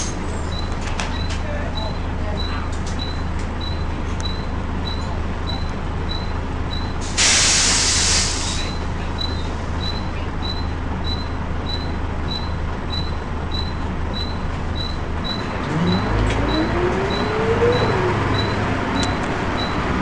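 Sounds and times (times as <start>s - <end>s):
bus engine running: 0.0s - 20.0s
air brake hiss: 7.0s - 8.7s
rising whine: 15.5s - 20.0s.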